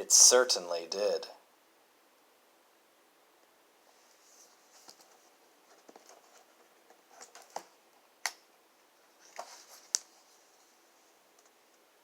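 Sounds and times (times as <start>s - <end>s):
book pages turning: 4.1s - 7.7s.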